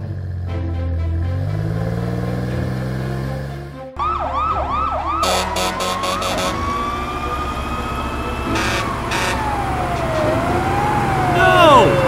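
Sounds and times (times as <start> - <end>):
fire engine siren wailing: 3.9 - 12.0
short loud horn blasts: 5.2 - 6.7, 8.5 - 9.5.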